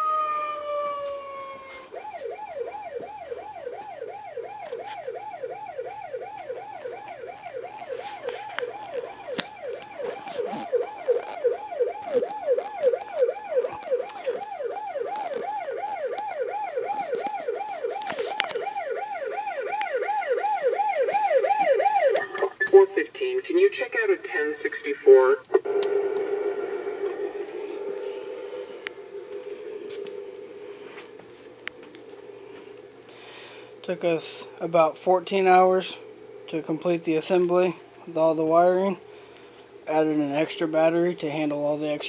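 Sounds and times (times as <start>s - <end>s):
toy police siren yelp: 0.0s - 23.1s.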